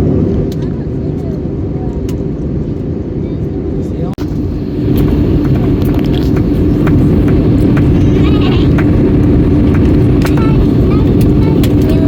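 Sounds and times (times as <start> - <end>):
airplane cabin engine rumble: 0.0 - 12.0
steady hum: 3.9 - 12.0.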